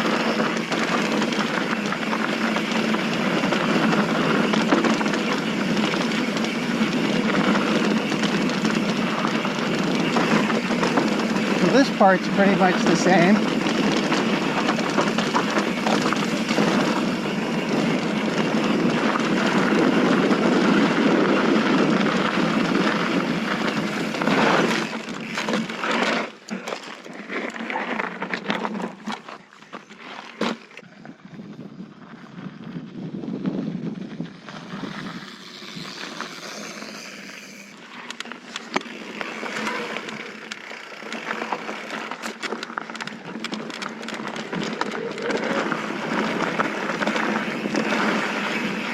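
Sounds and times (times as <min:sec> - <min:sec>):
bike clicks and rattles: 0:00.0 - 0:48.9
tyres rolling on loose dirt: 0:00.0 - 0:48.9
wind rushing over microphone: 0:30.9 - 0:36.4.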